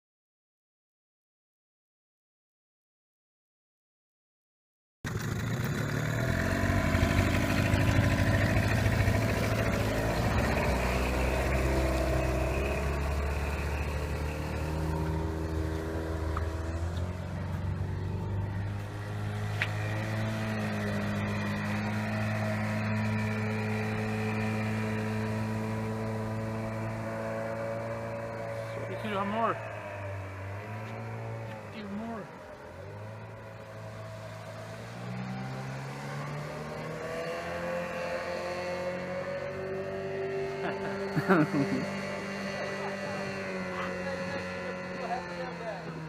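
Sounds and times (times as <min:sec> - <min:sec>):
outboard motor running: 0:05.1 - 0:46.0.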